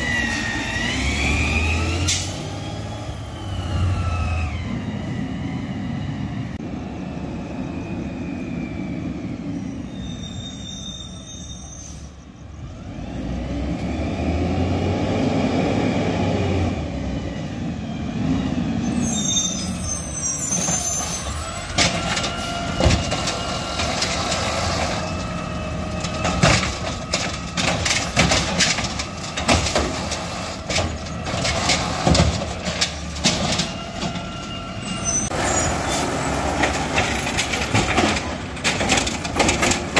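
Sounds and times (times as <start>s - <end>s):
garbage truck engine revving: 0.0s - 5.3s, 20.6s - 39.9s
metallic clanks and bangs: 26.0s - 34.6s, 36.5s - 39.9s.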